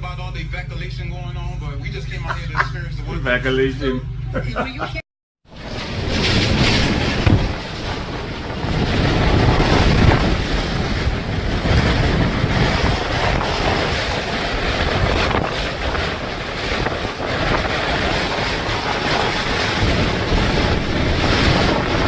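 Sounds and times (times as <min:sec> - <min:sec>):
wind gusting against microphone: 0:04.8 - 0:22.0.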